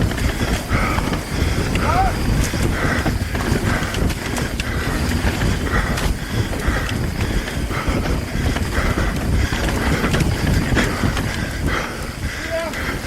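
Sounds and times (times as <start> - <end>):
bike knocking and rattling: 0.0 - 13.0
wind and tyres rumbling: 0.0 - 13.0.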